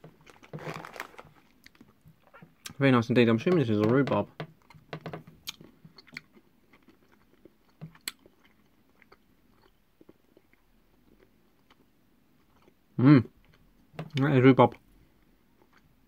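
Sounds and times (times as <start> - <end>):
chewing gummy sweet: 5.4 - 13.7.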